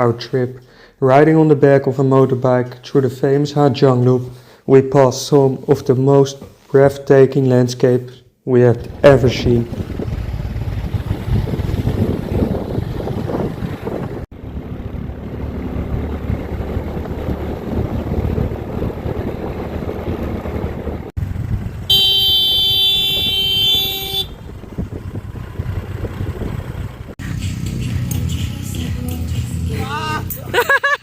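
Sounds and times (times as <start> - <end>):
rumbling road vehicle noise: 8.7 - 30.6
vehicle horn blast: 21.9 - 24.5.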